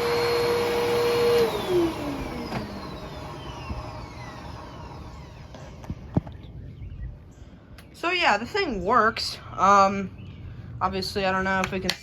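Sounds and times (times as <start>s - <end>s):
vacuum cleaner spinning down: 0.0s - 7.0s.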